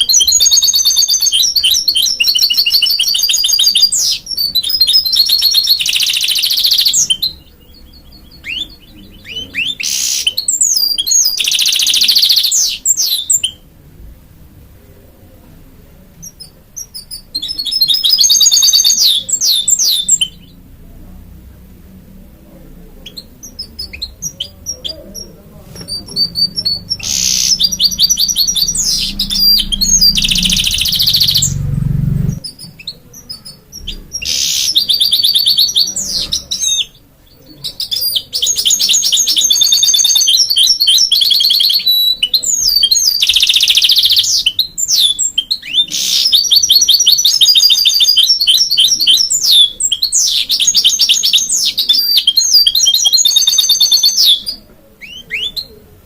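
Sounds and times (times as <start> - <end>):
bird singing trills and whistles: 0.0 - 13.6, 16.2 - 20.6, 23.0 - 31.7, 32.3 - 55.8
low hum: 26.1 - 32.4.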